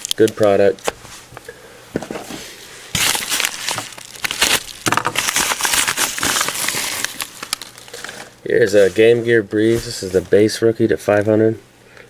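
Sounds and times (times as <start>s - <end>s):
packaging crinkling and rustling: 0.0s - 1.0s, 2.0s - 10.4s.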